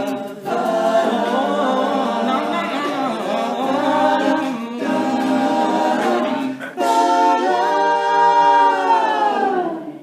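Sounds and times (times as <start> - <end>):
male group singing in harmony: 0.0 - 10.0.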